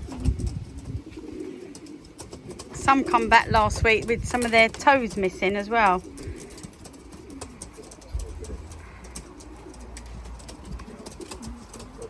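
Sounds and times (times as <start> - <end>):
pigeons cooing: 0.0 - 12.0
light clicks and taps: 3.5 - 12.0.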